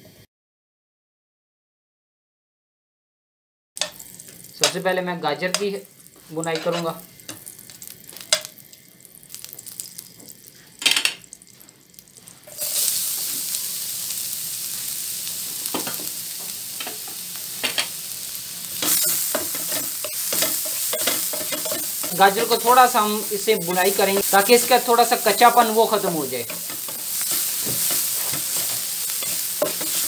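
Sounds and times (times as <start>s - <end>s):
loud sizzle: 3.8s - 30.0s
spoon scraping frying pan: 6.5s - 7.5s, 18.8s - 22.8s, 26.5s - 30.0s.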